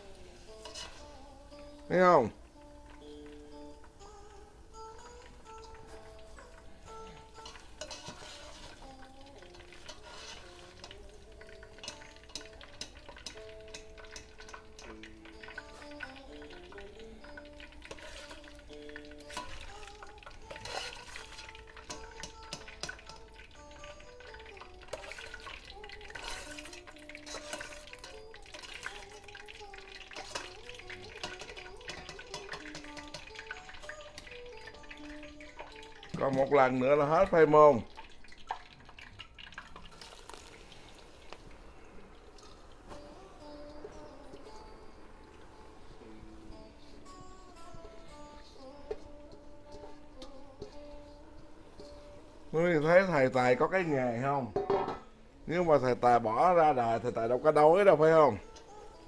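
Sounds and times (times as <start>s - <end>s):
food sizzling in hot oil: 0.0s - 59.0s
soft background music: 0.0s - 59.0s
utensils clicking while stirring: 0.4s - 1.2s, 4.8s - 41.4s, 48.5s - 52.1s.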